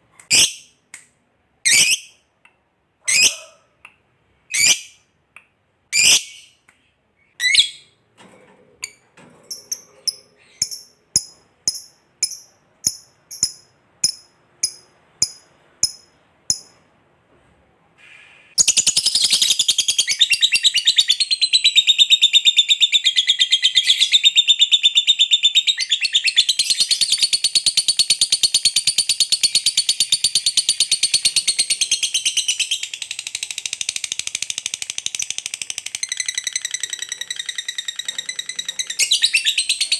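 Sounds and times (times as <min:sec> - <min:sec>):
lovebird squeaks and chirps: 0:01.7 - 0:02.2, 0:03.1 - 0:03.4, 0:04.5 - 0:05.0, 0:05.9 - 0:06.6, 0:07.4 - 0:07.9, 0:36.1 - 0:39.9.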